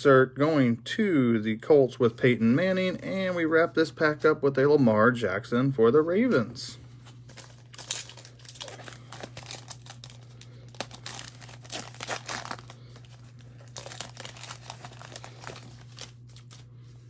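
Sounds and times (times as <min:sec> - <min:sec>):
low electrical hum: 0:00.0 - 0:17.0
wrapper torn and crinkled: 0:07.2 - 0:16.7.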